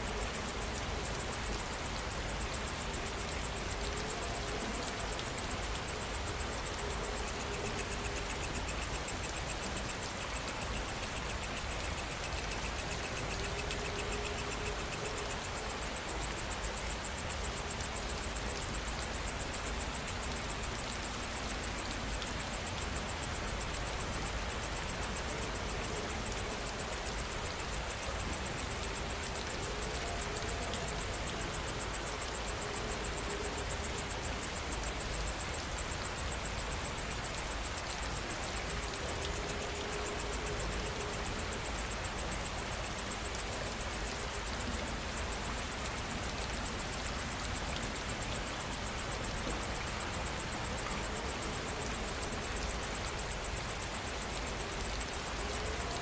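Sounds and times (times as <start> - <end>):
insect chirping: 0.0 - 56.0
rain falling: 0.0 - 56.0.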